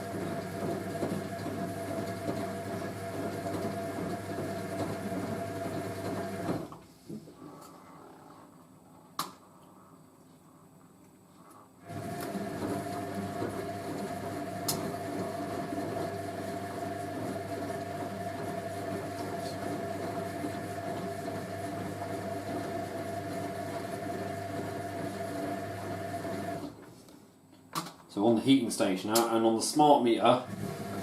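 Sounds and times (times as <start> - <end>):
washing machine motor humming: 0.0 - 6.7, 11.8 - 26.8, 29.8 - 31.0.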